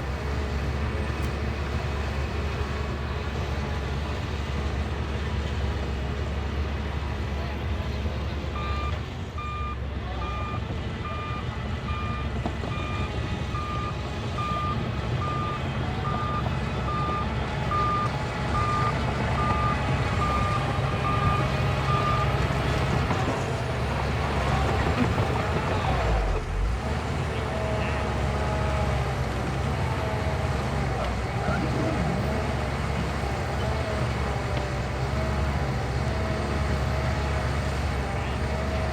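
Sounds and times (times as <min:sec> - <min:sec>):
diesel engine rumble: 0:00.0 - 0:38.9
reverse alarm beeping: 0:08.6 - 0:22.3.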